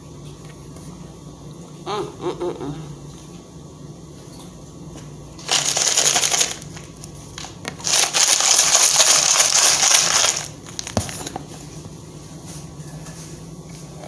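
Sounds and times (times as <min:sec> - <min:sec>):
loud dry crunching: 0:05.4 - 0:11.2.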